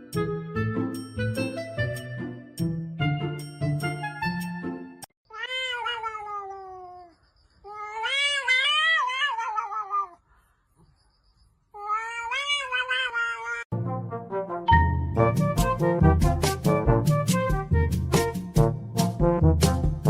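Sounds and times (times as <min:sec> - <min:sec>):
cat meowing: 0:05.3 - 0:10.2, 0:11.8 - 0:13.7.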